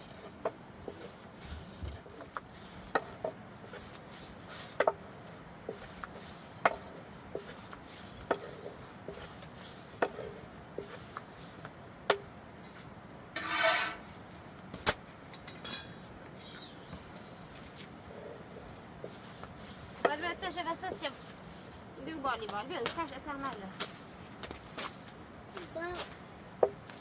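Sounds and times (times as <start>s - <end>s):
rasping sound: 13.4s - 14.1s.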